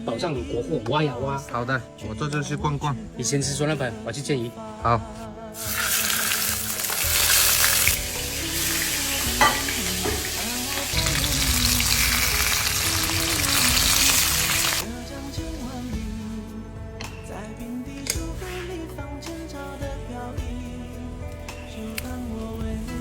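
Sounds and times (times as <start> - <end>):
fish sizzling in hot oil: 5.6 - 14.8.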